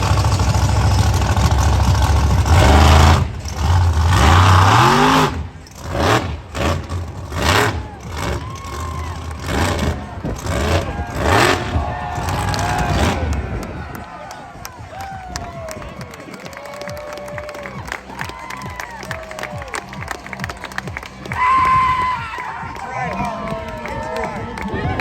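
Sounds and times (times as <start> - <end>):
truck engine revving: 0.0 - 14.1.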